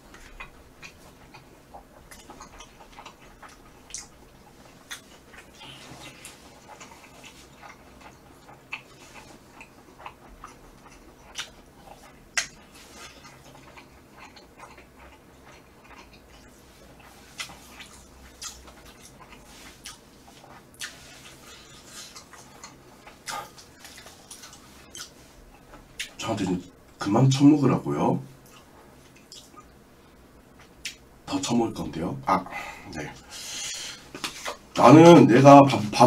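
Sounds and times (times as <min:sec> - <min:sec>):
chewing food mouth sounds: 0:00.1 - 0:26.2, 0:28.4 - 0:29.8.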